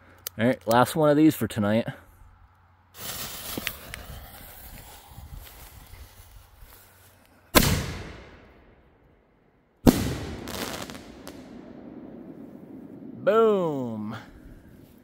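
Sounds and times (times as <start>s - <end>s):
firework cracks: 3.0s - 5.8s, 7.5s - 8.8s, 9.8s - 13.4s
firework launch bang: 7.6s - 8.6s, 9.9s - 13.2s.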